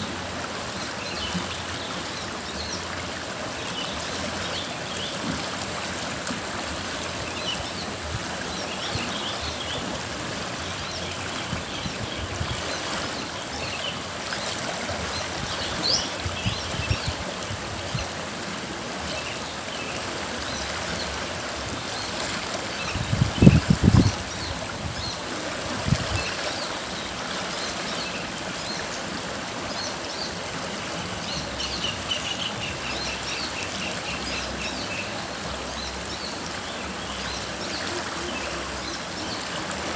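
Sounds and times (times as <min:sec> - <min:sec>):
river water flowing: 0:00.0 - 0:39.9
birds chirping: 0:26.2 - 0:39.8.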